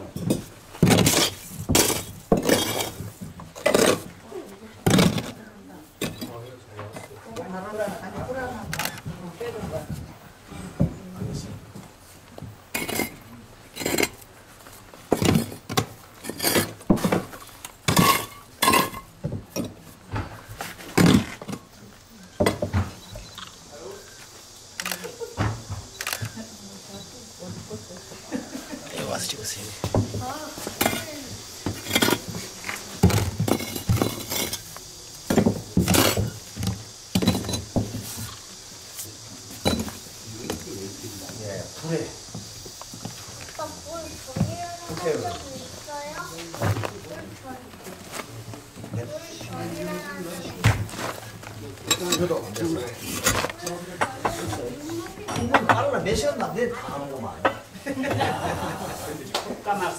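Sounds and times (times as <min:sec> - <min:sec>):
pottery pieces clinking: 0:00.2 - 0:03.0, 0:12.7 - 0:14.2, 0:15.2 - 0:16.8, 0:17.9 - 0:19.8, 0:31.8 - 0:32.5, 0:33.4 - 0:34.7, 0:37.2 - 0:37.7.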